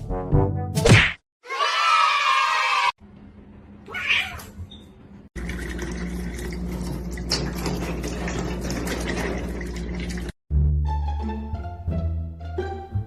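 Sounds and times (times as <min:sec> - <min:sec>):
cat meowing: 0:03.9 - 0:04.6.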